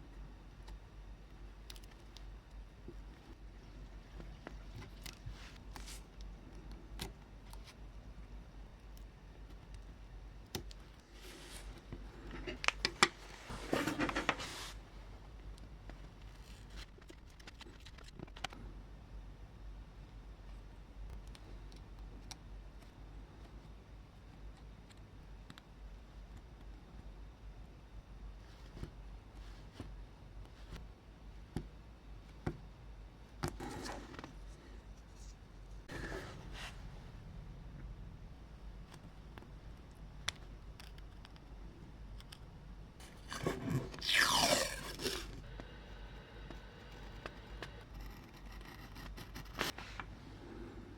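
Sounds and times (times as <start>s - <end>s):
low steady hum: 0.0s - 50.9s.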